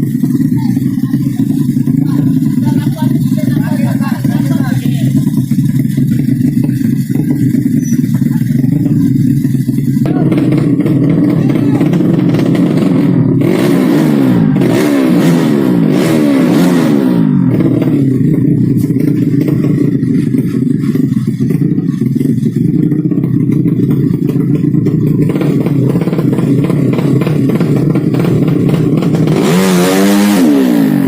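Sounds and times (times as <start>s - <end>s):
motorcycle engines running hard: 0.0s - 31.0s.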